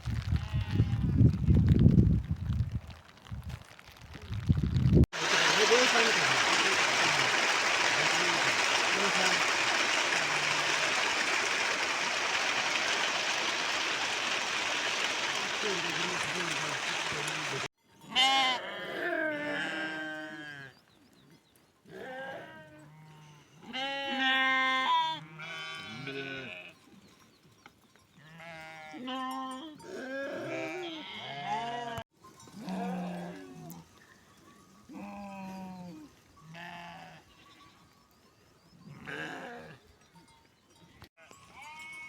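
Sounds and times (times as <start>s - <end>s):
sheep bleating: 18.1s - 20.7s, 21.9s - 26.7s, 28.2s - 32.0s, 35.0s - 37.2s, 38.9s - 39.8s.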